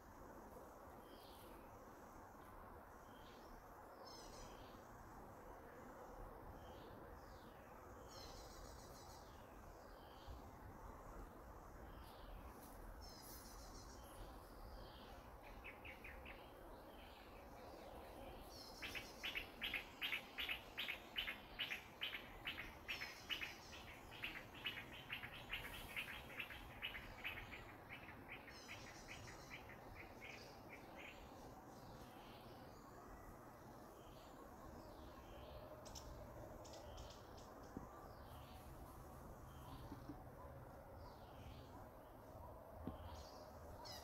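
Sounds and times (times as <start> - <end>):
faint outdoor background noise: 0.0 - 44.0
bird chirping: 11.9 - 32.9, 33.9 - 44.0.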